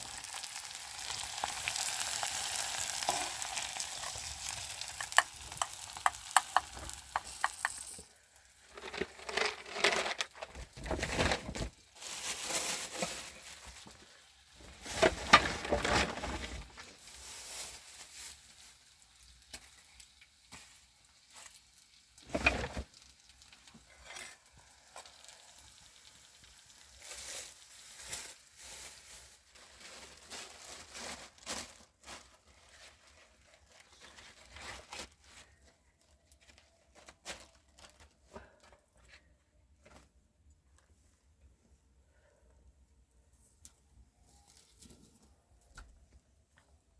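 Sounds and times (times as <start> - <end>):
food sizzling in a pan: 0.0 - 8.2, 24.5 - 29.0
handling and stirring noise: 0.0 - 41.5.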